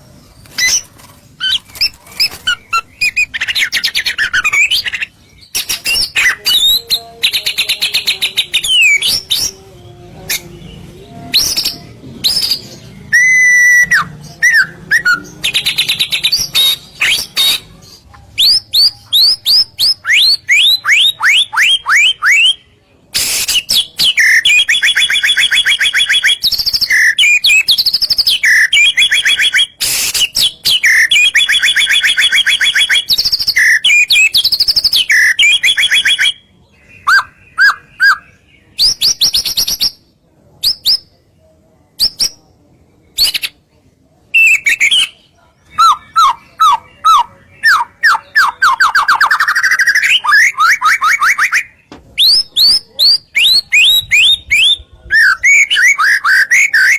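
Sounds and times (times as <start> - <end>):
songbird singing: 0.0 - 40.1, 44.3 - 56.9.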